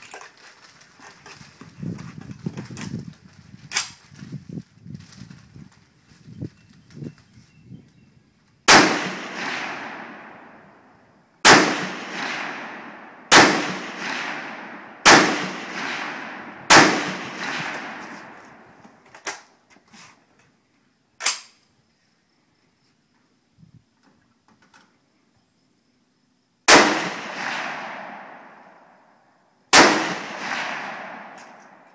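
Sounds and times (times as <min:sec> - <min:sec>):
rifle shots with echo: 0:08.7 - 0:18.8, 0:26.7 - 0:28.7, 0:29.7 - 0:31.9.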